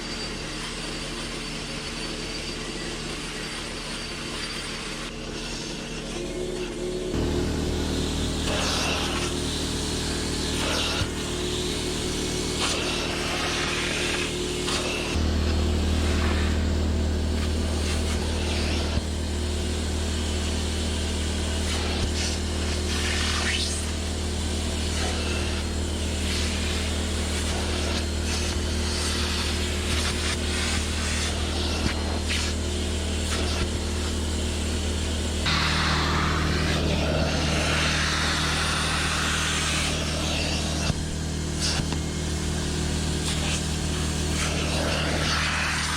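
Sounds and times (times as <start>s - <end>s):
cleaning machine motor humming: 0.0s - 45.9s
airy hiss: 35.4s - 41.9s.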